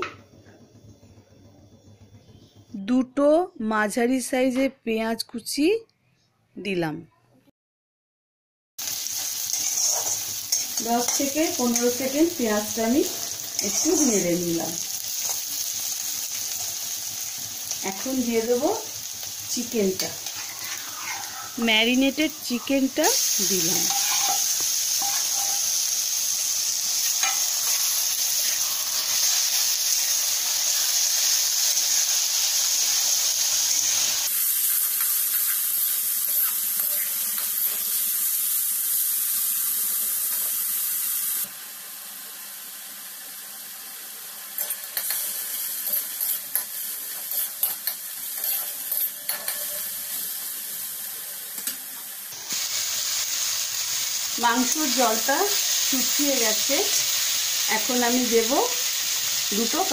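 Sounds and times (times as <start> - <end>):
chicken sizzling in hot oil: 8.8 - 59.9
spatula scraping a pan: 9.5 - 11.9, 20.2 - 21.7, 22.6 - 25.8, 27.1 - 29.3, 45.8 - 49.9.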